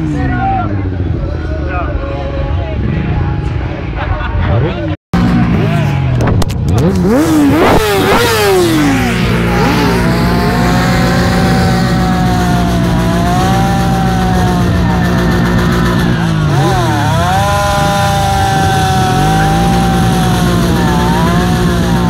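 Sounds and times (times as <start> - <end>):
motorcycle engine revving: 4.5 - 22.0.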